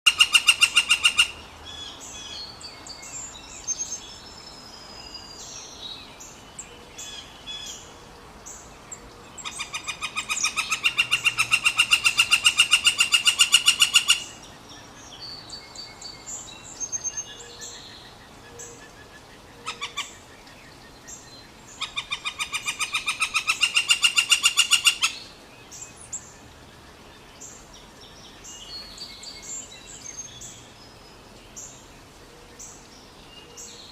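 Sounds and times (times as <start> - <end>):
woodpecker long call: 0.1 - 2.5, 9.4 - 14.5, 17.0 - 20.3, 21.1 - 25.4.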